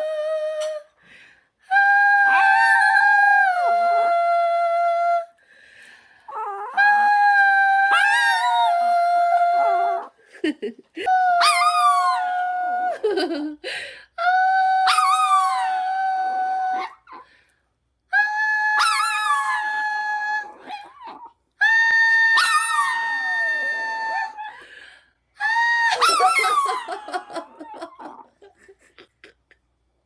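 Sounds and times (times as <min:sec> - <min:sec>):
person singing: 0:01.7 - 0:05.3
dog howling: 0:22.0 - 0:24.5.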